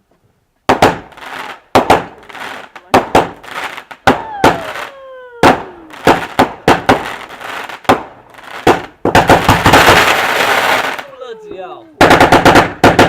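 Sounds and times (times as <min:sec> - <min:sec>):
fireworks banging: 0:00.6 - 0:13.0
firework whistling: 0:03.4 - 0:11.2.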